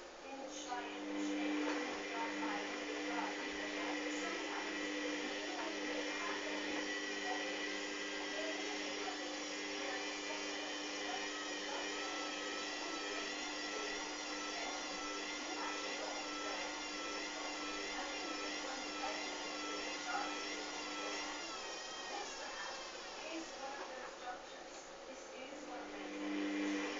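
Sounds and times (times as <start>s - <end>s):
washing machine motor whining: 0.0s - 26.9s.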